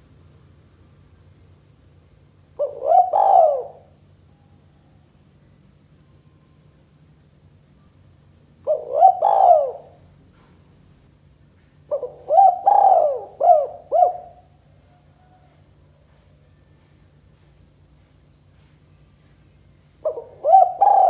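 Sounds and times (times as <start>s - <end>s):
dove cooing: 2.6s - 3.9s, 8.6s - 10.5s, 11.9s - 14.5s, 20.0s - 21.0s.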